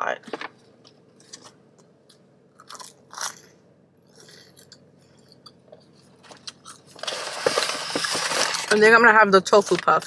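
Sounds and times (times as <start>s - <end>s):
person chewing crispy food: 2.6s - 5.5s.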